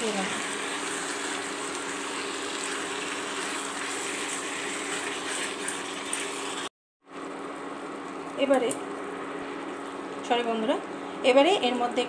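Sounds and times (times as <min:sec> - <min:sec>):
chicken sizzling in oil: 0:00.0 - 0:06.7.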